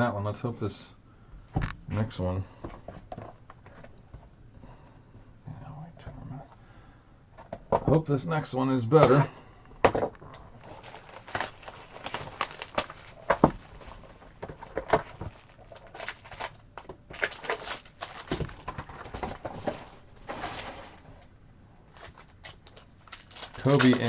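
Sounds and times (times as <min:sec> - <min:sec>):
cards rustling and clicking: 0:10.2 - 0:19.8, 0:21.9 - 0:24.0
wrapper crinkling: 0:10.3 - 0:21.0, 0:21.9 - 0:24.0.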